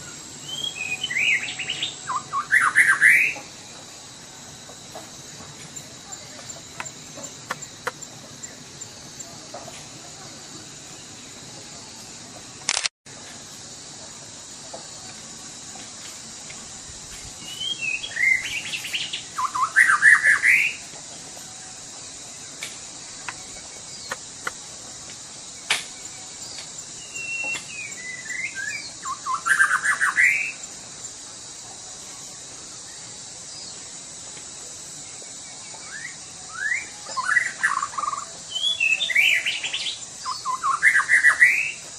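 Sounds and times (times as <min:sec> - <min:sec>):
bird singing whistled phrases: 0:00.4 - 0:03.4, 0:17.5 - 0:20.8, 0:35.9 - 0:41.8.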